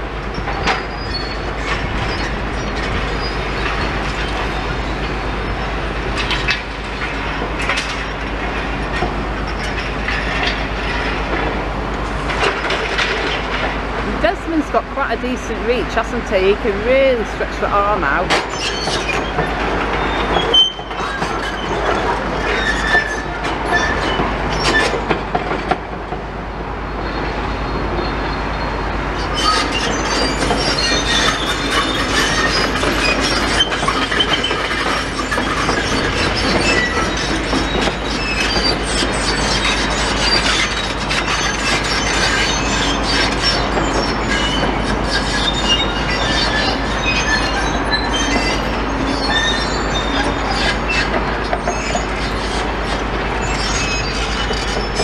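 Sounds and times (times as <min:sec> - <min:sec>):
short metal squeals: 0:17.8 - 0:25.0, 0:29.2 - 0:55.0.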